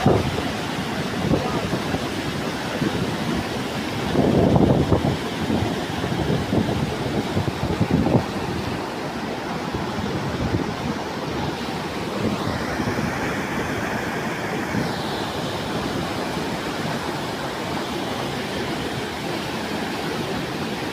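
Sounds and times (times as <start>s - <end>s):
heavy rain pouring: 0.0s - 20.9s.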